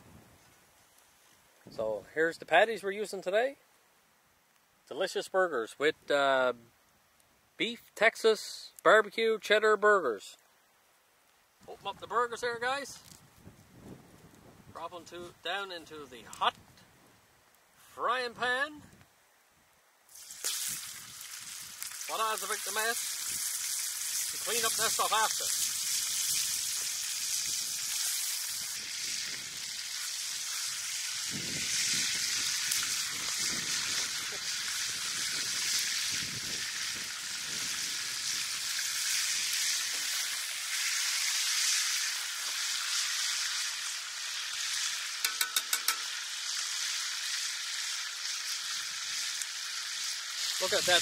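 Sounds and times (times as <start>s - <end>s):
burger patties sizzling in a pan: 20.1s - 51.0s.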